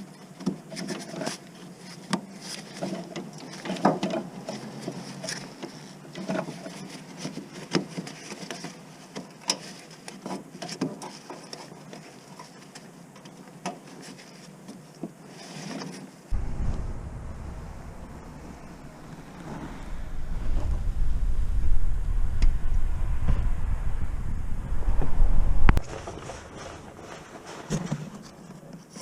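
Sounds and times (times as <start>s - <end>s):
faint low hum: 16.3s - 25.8s.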